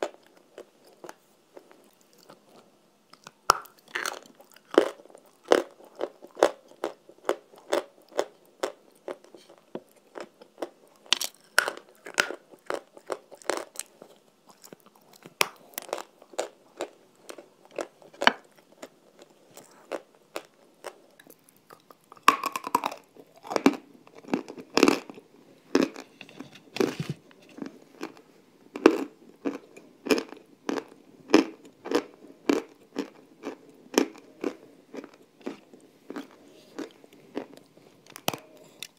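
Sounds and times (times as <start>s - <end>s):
person biting and chewing crunchy block: 3.2s - 8.8s, 10.1s - 28.2s.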